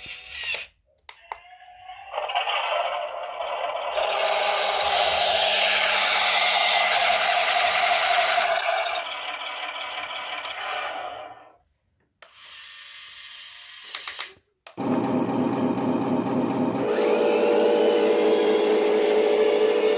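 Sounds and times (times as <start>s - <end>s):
electric motor and gearbox whining: 2.2s - 11.5s, 14.8s - 19.9s.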